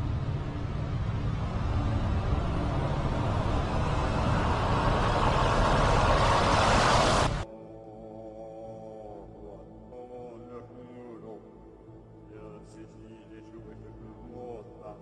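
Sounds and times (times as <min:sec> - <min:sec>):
rushing noise: 0:00.0 - 0:07.4
vehicle engine rumble: 0:00.0 - 0:07.4.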